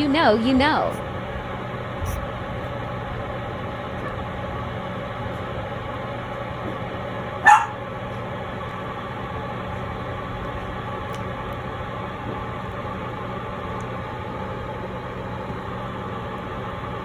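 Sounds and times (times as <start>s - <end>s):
steady background hum: 0.0s - 17.0s
puppy yipping: 7.4s - 7.8s.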